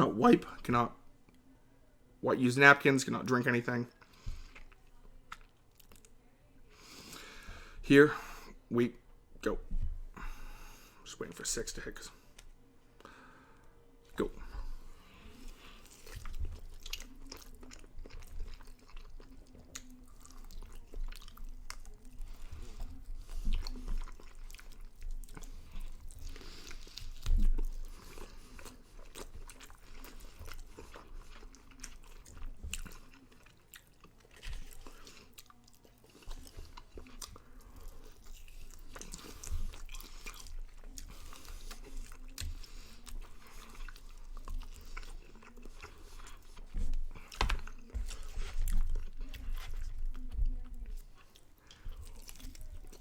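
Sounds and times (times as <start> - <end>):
person chewing chicken wings: 4.0 - 6.2, 14.3 - 53.0.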